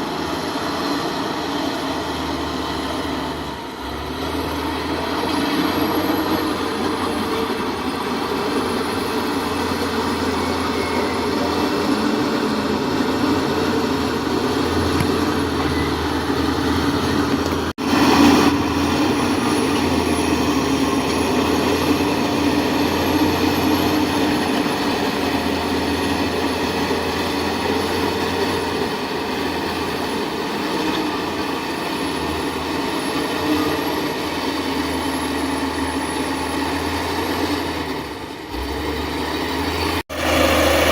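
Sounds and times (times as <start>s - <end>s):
heavy machinery drone: 0.0s - 40.9s.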